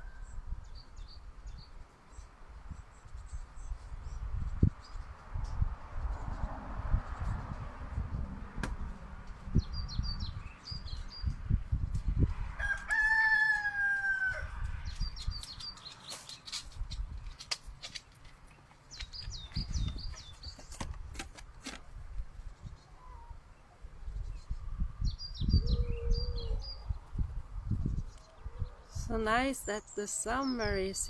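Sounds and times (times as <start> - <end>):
small birds chirping: 0.0 - 6.5, 9.3 - 12.0, 14.7 - 21.0, 22.2 - 31.0
rooster crowing: 12.3 - 14.8.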